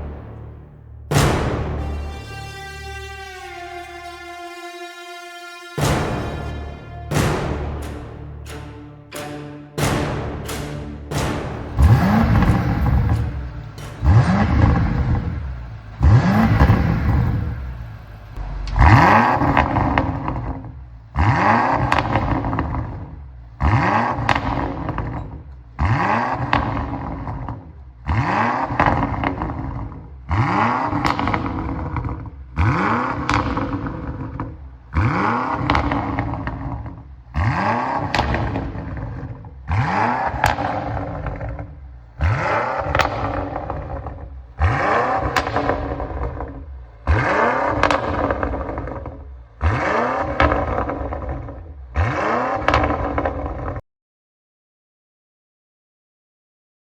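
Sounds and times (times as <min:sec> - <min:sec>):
car engine revving: 0:00.0 - 0:04.6, 0:05.8 - 0:20.5, 0:42.2 - 0:53.2.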